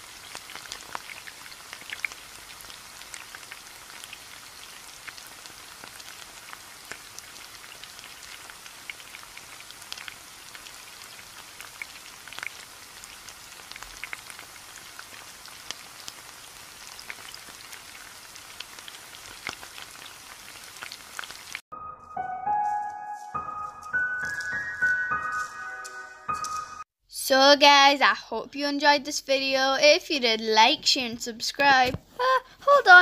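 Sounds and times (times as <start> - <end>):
oil sizzling with pops: 0.0 - 21.6
music: 21.7 - 26.9.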